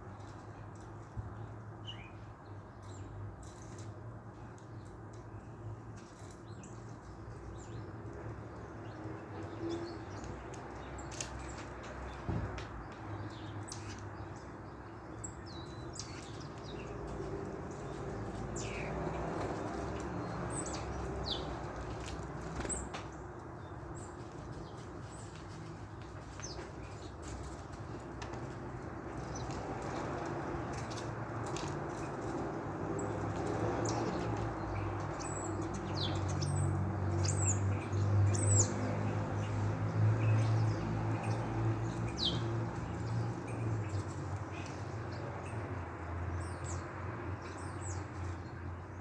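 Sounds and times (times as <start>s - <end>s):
small birds chirping: 0.0s - 49.0s
wings fluttering: 16.0s - 23.1s.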